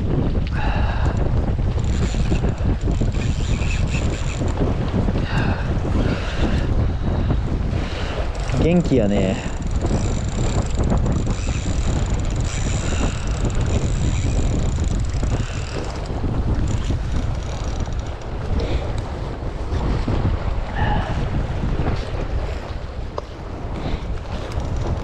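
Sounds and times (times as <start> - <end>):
wind buffeting microphone: 0.0 - 25.0
short squeaks: 1.8 - 4.6.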